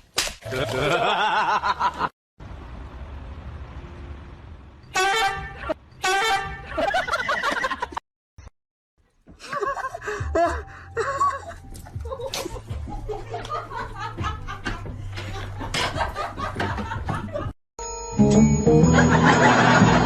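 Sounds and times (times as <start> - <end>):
person laughing: 0.5 - 2.1, 9.4 - 14.7
music: 10.0 - 16.0, 17.8 - 20.0.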